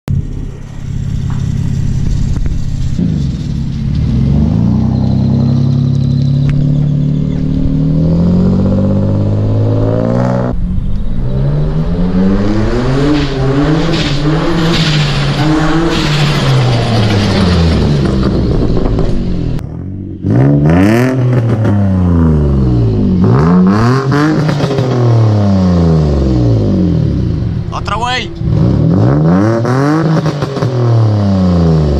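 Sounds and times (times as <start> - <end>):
car engine revving: 0.0 - 31.9.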